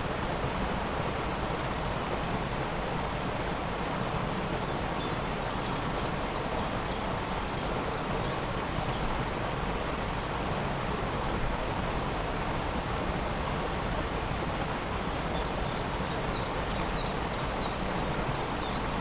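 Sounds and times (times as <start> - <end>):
waterfall rushing: 0.0 - 19.0
small bird calling: 5.0 - 9.4, 15.4 - 19.0.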